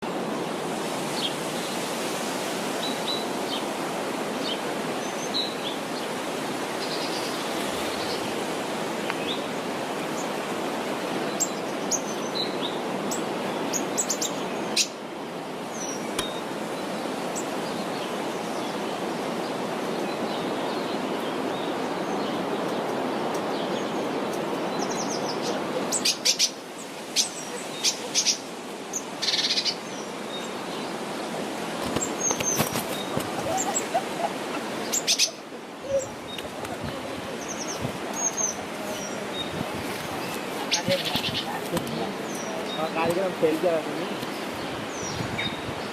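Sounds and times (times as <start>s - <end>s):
river water rushing: 0.0s - 45.9s
birds chirping: 15.6s - 45.9s.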